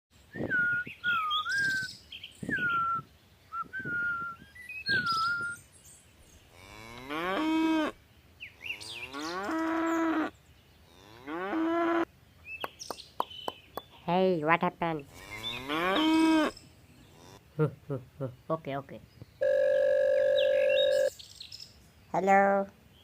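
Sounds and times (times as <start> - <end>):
cattle mooing: 6.6 - 7.9, 8.6 - 10.3, 15.1 - 16.5, 17.1 - 17.4.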